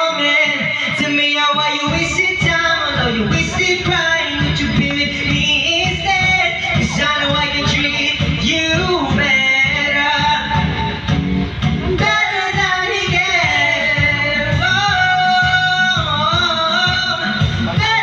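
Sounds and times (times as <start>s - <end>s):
pop backing track with beat: 0.0s - 18.0s
person singing long held notes: 11.9s - 18.0s.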